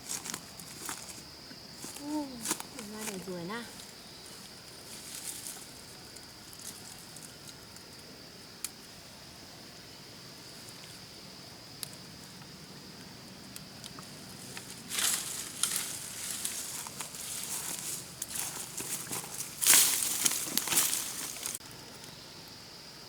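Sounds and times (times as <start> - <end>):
rustling and crackling: 0.0 - 7.9, 13.8 - 21.6.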